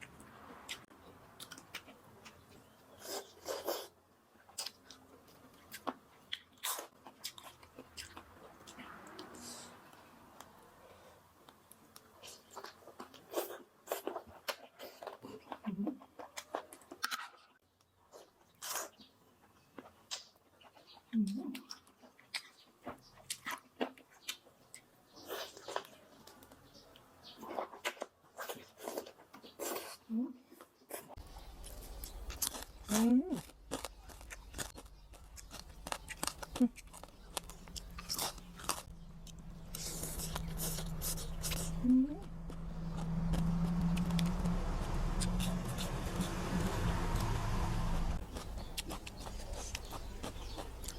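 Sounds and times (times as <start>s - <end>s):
chewing and crunching: 0.0s - 50.9s
low steady hum: 31.2s - 50.9s.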